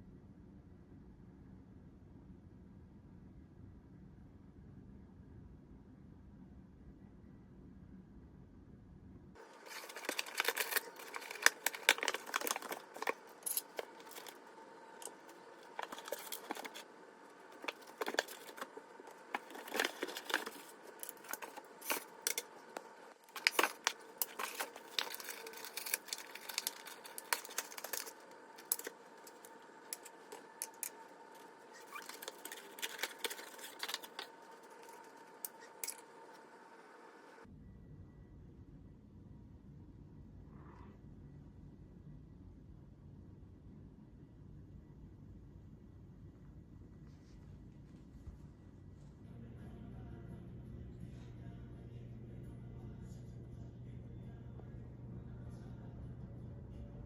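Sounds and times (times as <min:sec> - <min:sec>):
objects clicking and tapping: 0:09.7 - 0:14.4.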